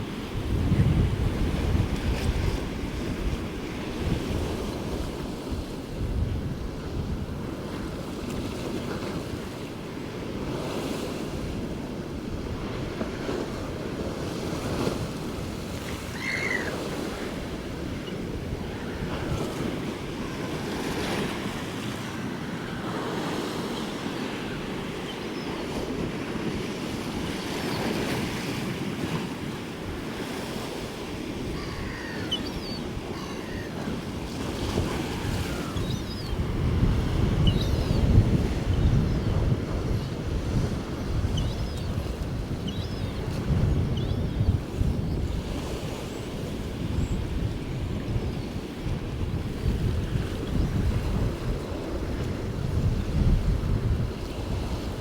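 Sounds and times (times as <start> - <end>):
wind gusting over microphone: 0.0 - 9.4, 29.9 - 55.0
waves breaking: 12.7 - 41.3.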